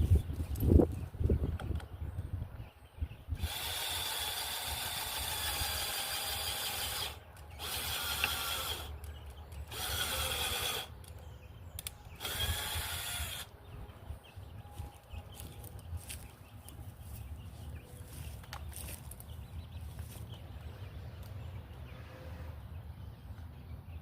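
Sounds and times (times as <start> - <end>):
cordless drill whine: 3.4 - 8.9, 9.7 - 10.9, 12.2 - 13.5.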